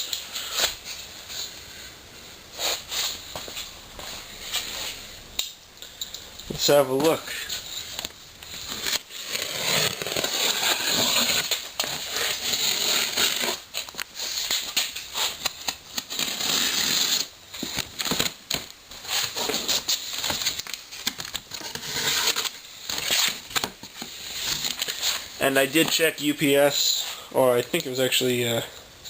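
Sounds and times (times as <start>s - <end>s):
packing material rustling: 6.6s - 26.5s
cardboard tearing: 8.5s - 26.0s.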